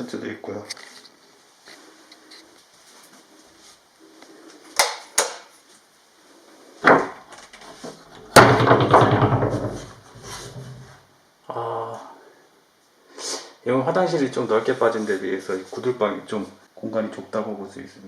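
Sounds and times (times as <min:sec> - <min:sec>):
door rattling: 0:06.9 - 0:10.5
knock on door: 0:08.3 - 0:10.0.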